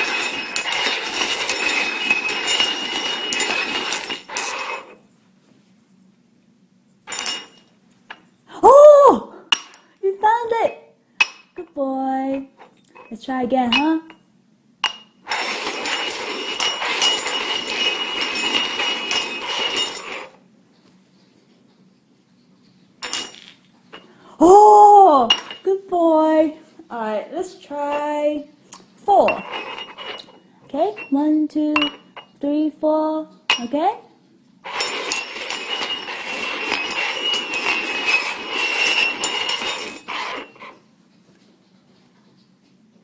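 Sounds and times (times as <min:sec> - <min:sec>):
hard objects clinking and scraping: 0:00.0 - 0:05.0, 0:07.1 - 0:08.3, 0:14.8 - 0:20.4, 0:23.0 - 0:24.2, 0:25.3 - 0:25.8, 0:29.1 - 0:32.4, 0:34.6 - 0:40.8.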